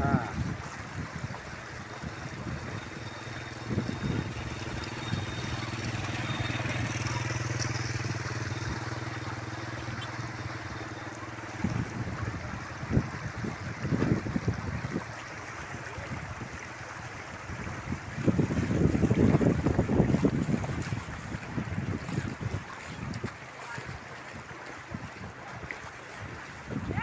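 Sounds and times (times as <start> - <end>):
vehicle engine humming: 1.4 - 14.4.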